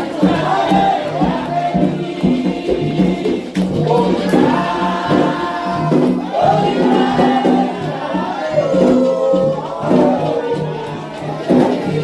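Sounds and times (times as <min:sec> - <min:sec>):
drums: 0:00.0 - 0:12.0
group of voices chanting: 0:00.0 - 0:12.0.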